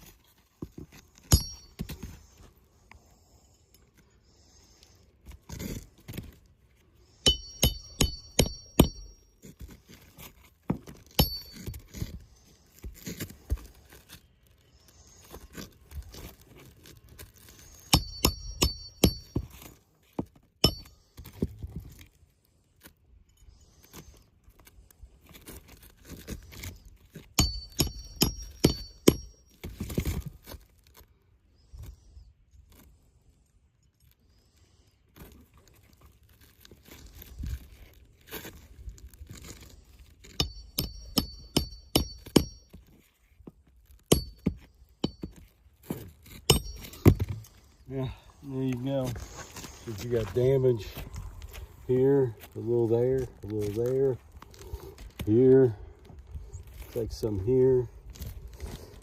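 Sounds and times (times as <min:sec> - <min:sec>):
hammer tapping on metal: 0:07.3 - 0:09.0.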